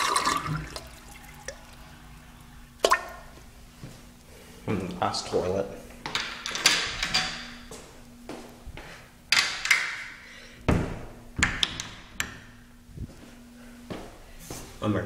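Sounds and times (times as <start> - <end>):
faint steady hum: 0.0 - 15.0
stall door knocks and thuds: 10.7 - 11.8.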